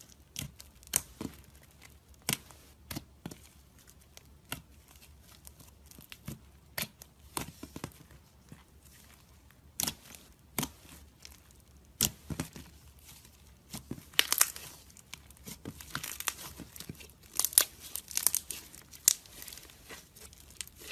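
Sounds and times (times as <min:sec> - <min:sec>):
slime crackling: 0:08.4 - 0:20.9.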